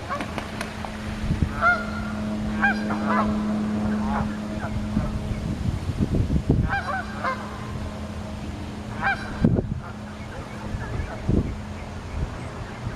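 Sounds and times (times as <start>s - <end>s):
steady low hum: 0.0s - 12.9s
geese honking: 1.5s - 5.4s, 6.6s - 8.1s, 8.9s - 12.9s.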